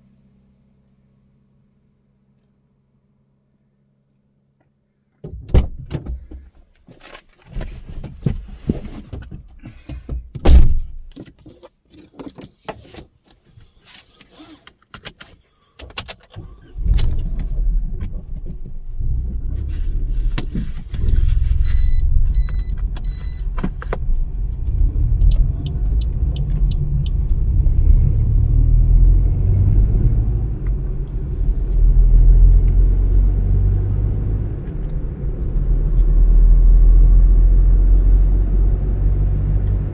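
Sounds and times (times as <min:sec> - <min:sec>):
thump: 0:05.2 - 0:06.5, 0:10.0 - 0:11.1
car engine and road rumble: 0:05.2 - 0:12.4, 0:13.5 - 0:39.9
short electronic car beeps: 0:21.6 - 0:23.5.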